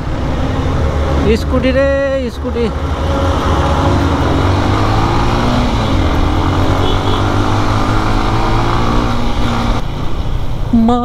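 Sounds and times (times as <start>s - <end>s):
wind and road noise: 0.0s - 11.0s
motorcycle engine running: 2.7s - 9.8s.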